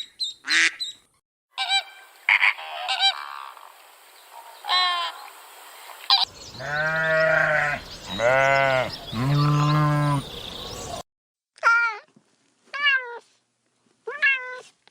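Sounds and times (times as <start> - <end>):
goat bleating: 6.6 - 10.3.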